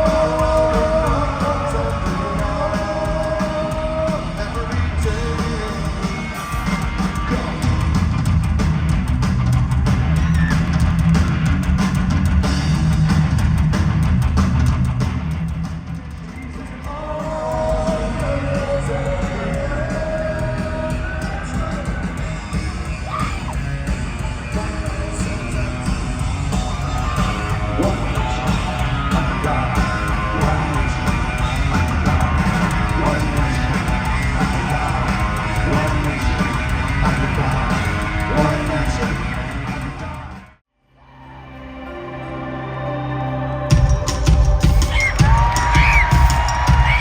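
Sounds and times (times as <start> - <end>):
shouted lead vocal: 0.0 - 7.8, 16.5 - 40.4, 44.6 - 47.0
distorted guitars: 0.0 - 40.6, 41.2 - 47.0
drums: 0.0 - 40.7, 43.6 - 47.0.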